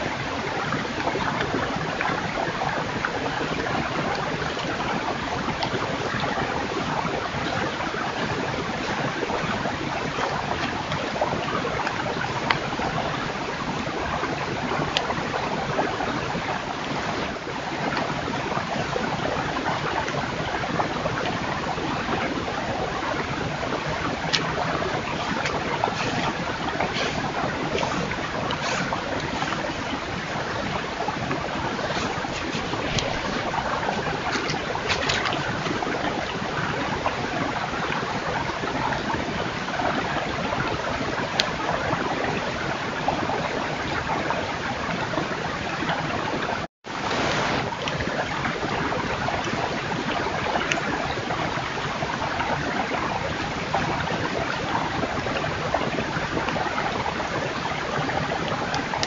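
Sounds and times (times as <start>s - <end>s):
steady rushing noise: 22.6s - 36.4s.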